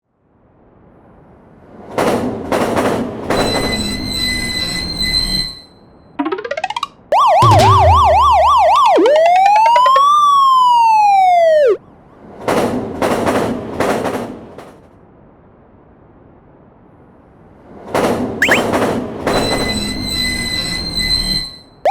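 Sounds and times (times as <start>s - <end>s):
police siren: 7.1s - 12.1s, 18.4s - 18.7s.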